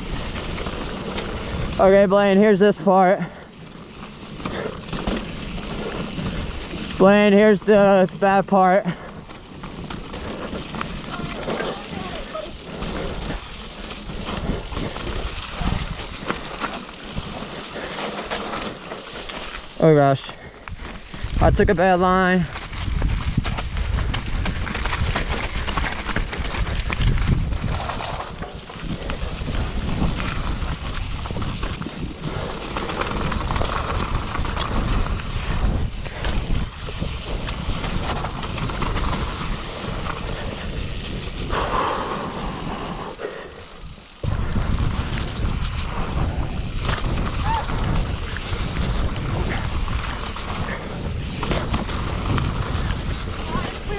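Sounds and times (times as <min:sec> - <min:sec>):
tyres rushing on dirt: 0:00.0 - 0:53.9
wind buffeting microphone: 0:03.4 - 0:07.8, 0:08.9 - 0:18.7, 0:20.4 - 0:53.9
bike knocks and rattles: 0:03.9 - 0:07.0, 0:20.7 - 0:41.3, 0:44.2 - 0:53.9.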